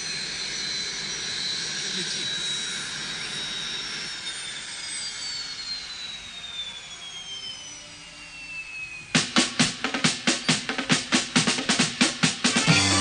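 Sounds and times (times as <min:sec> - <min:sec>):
jet engine whine: 0:00.0 - 0:13.0
drum kit hitting: 0:09.2 - 0:13.0.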